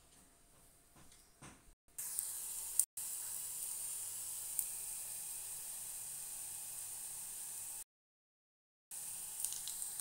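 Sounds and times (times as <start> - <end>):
food sizzling in hot oil: 2.0 - 7.9, 8.9 - 10.0.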